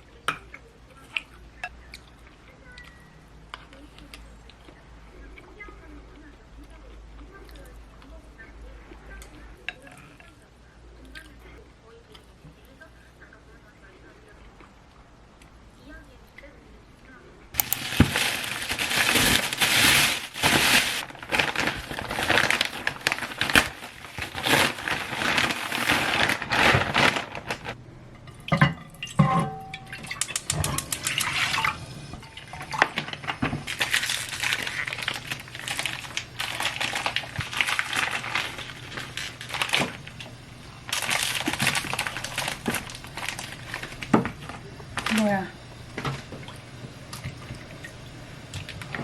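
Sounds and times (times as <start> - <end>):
dishware clinking: 28.2 - 32.8.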